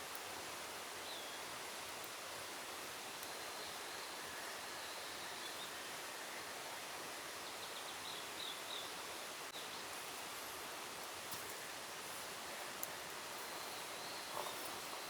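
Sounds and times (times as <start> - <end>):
forest ambience hiss: 0.0 - 15.0.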